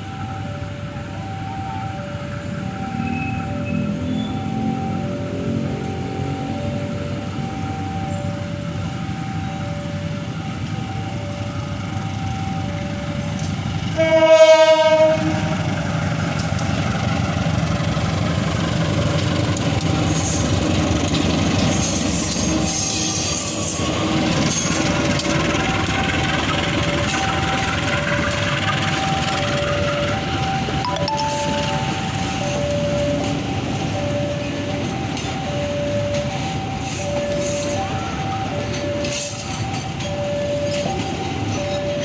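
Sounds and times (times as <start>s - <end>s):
train rumbling past: 11.5s - 42.0s
locomotive horn blast: 14.0s - 15.8s.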